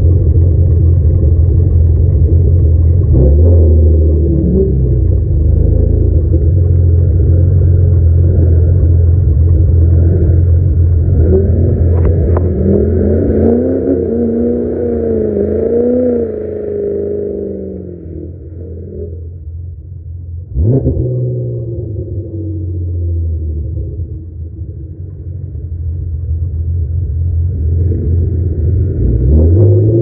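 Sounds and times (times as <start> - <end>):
diesel truck engine revving: 0.0 - 19.4, 27.4 - 30.0.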